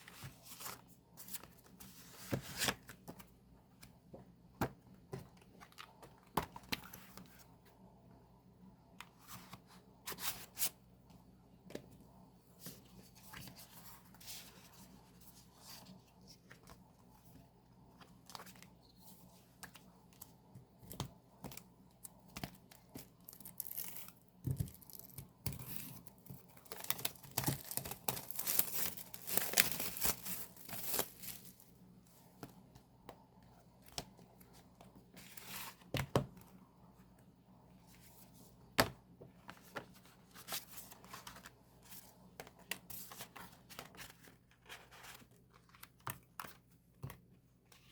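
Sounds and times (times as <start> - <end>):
plastic wrap tearing and rustling: 26.6 - 31.6.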